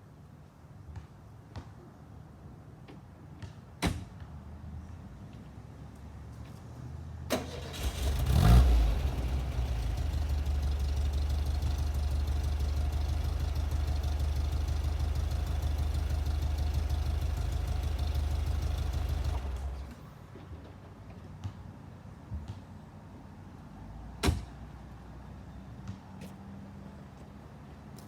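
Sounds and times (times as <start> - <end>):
car engine starting and idling: 7.3 - 20.0.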